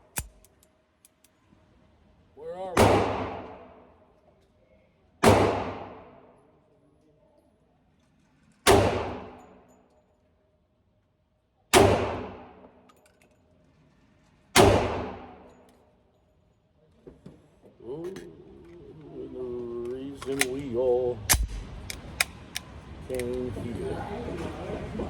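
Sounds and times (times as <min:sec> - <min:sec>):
handgun shots echoing: 0:00.0 - 0:00.6, 0:02.8 - 0:03.8, 0:05.2 - 0:06.2, 0:08.7 - 0:09.5, 0:11.7 - 0:12.7, 0:14.6 - 0:15.6.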